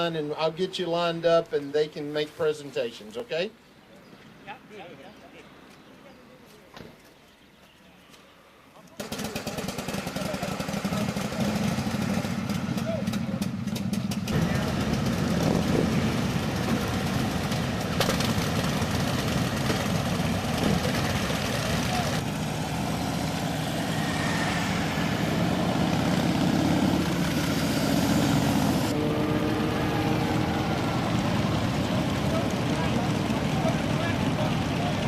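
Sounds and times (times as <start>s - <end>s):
motorcycle engines idling: 8.9s - 35.0s
people talking: 10.1s - 11.8s, 14.4s - 15.0s, 20.6s - 22.2s, 31.4s - 35.0s.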